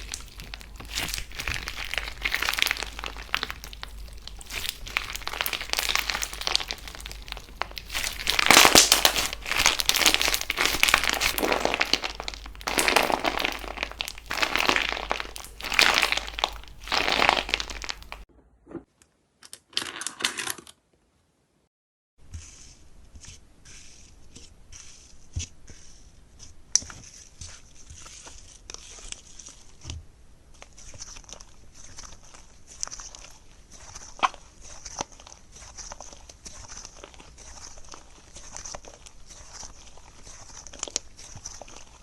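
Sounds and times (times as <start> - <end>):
crunchy slime crackling: 0.0 - 18.3, 30.6 - 42.0.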